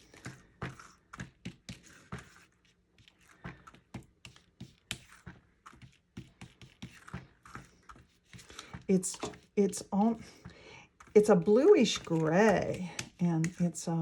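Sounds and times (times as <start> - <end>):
sponge dauber tapping: 3.3 - 14.0.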